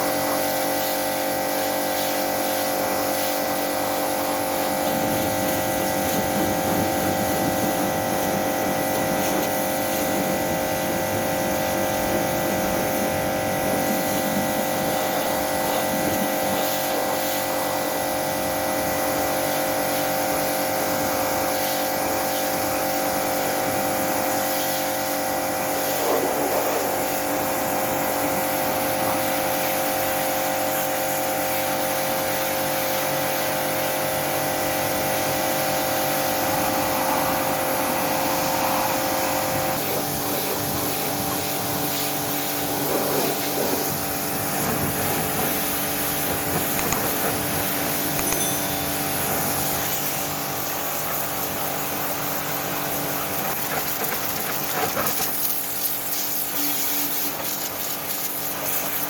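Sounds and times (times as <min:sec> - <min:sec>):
machinery humming: 0:36.1 - 0:46.6.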